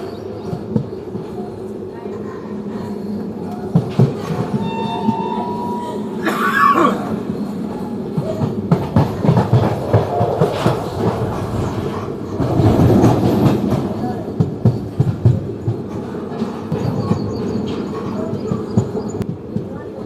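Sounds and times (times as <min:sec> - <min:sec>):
train wheels rumbling: 0:00.0 - 0:20.0.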